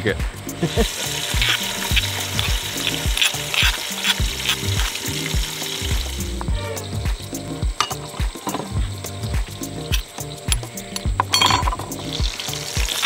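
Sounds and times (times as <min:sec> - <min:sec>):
background music with steady beat: 0:00.0 - 0:13.0
food sizzling in a hot pot: 0:00.6 - 0:13.0
light clinks: 0:09.9 - 0:12.2.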